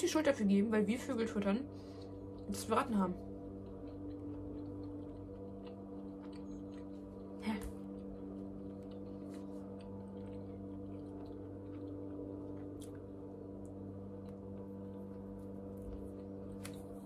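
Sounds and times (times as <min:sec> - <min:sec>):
steady low hum: 0:00.0 - 0:17.0
person chewing: 0:03.2 - 0:17.0.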